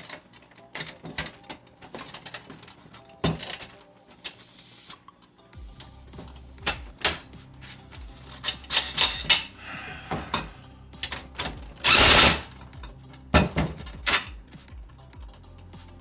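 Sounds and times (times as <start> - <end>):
metal parts knocking and clinking: 0.0 - 4.4, 5.8 - 7.3, 7.9 - 15.6
loud rasping burst: 11.8 - 12.5.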